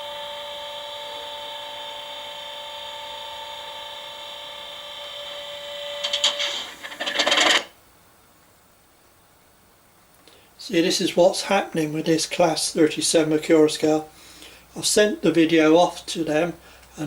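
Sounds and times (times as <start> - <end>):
clattering rattle: 6.0 - 7.7
speaker hiss: 6.0 - 8.4, 10.1 - 17.0.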